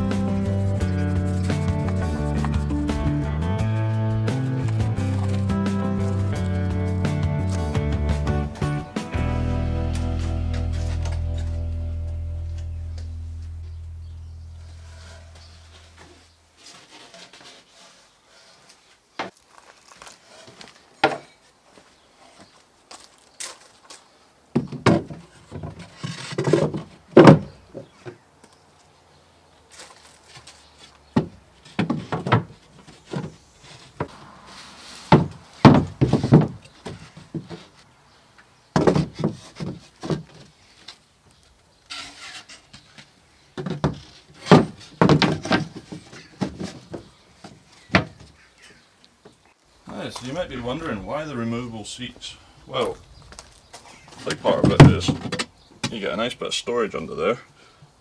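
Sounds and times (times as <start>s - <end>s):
wooden knocks thuds and scrapes: 0.0s - 3.3s, 4.2s - 7.8s, 24.5s - 28.2s, 29.7s - 37.9s, 38.7s - 41.0s, 41.8s - 48.4s, 53.2s - 56.0s.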